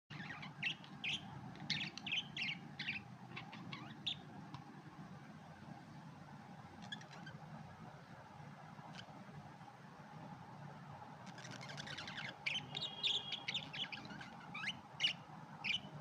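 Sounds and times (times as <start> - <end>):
budgerigars chirping: 0.1 - 4.2, 6.8 - 7.4, 11.3 - 15.9
low steady hum: 0.1 - 16.0.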